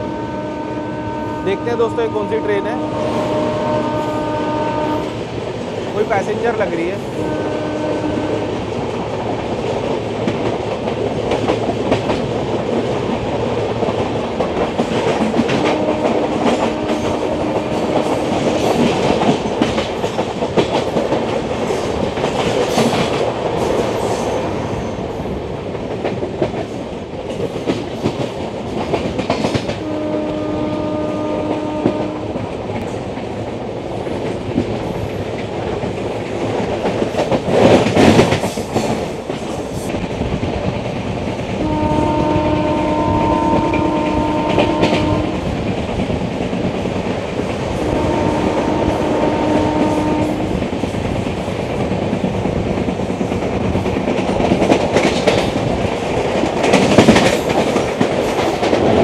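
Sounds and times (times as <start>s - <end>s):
train horn blowing: 0.0s - 5.2s, 7.2s - 8.7s, 15.4s - 18.5s, 29.8s - 32.4s, 41.6s - 45.5s, 47.8s - 50.6s
clickety-clack over rail joints: 0.0s - 59.0s
rush of wind and train wheels: 0.0s - 59.0s.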